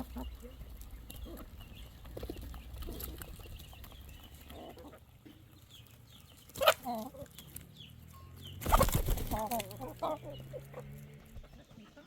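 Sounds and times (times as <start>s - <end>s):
chickens clucking: 0.0s - 12.0s
wing flapping: 8.6s - 9.8s
wavering chicken calls: 8.6s - 12.0s.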